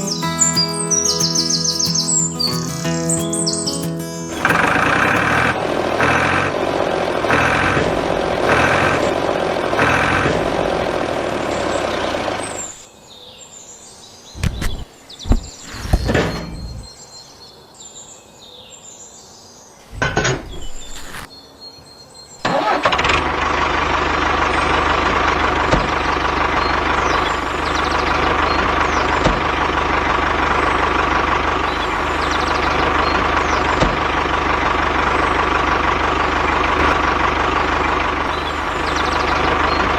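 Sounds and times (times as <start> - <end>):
birds chirping: 0.0 - 6.4, 9.8 - 22.5, 24.3 - 39.9
rhythmic pulsing sound: 0.0 - 6.7
small motor running: 4.5 - 12.6.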